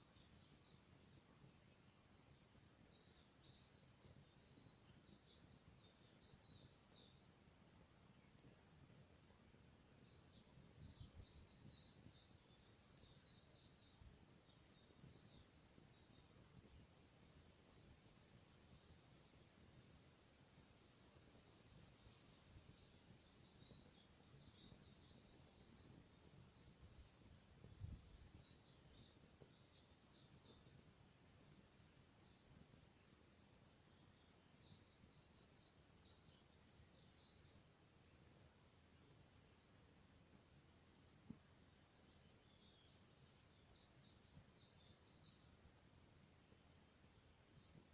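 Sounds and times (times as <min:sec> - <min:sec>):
low background noise: 0:00.0 - 0:47.9
faint clicks: 0:07.0 - 0:09.1, 0:09.9 - 0:17.2, 0:23.1 - 0:30.8, 0:31.5 - 0:37.0, 0:38.9 - 0:39.7, 0:42.8 - 0:46.0
bird singing faintly: 0:09.9 - 0:19.2, 0:22.7 - 0:37.7, 0:41.9 - 0:45.8.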